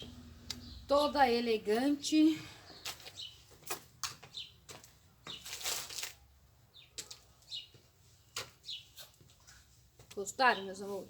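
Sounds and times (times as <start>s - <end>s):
small birds chirping: 0.0s - 11.0s
rustle: 5.4s - 6.2s.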